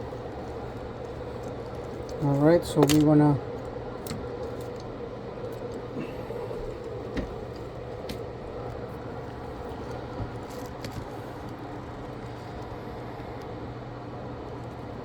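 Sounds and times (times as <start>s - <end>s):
equipment hum and fan hiss: 0.0s - 15.0s
small tools clicking: 1.4s - 3.2s.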